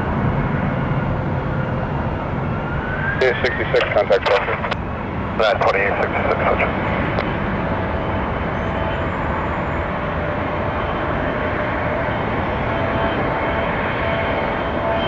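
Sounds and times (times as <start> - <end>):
jet engines rushing and whining: 0.0 - 15.0.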